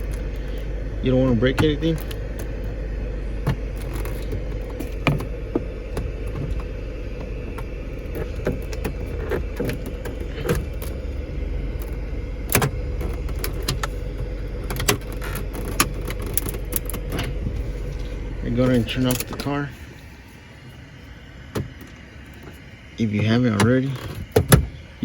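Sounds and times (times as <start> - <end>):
car running hum: 0.0 - 25.0.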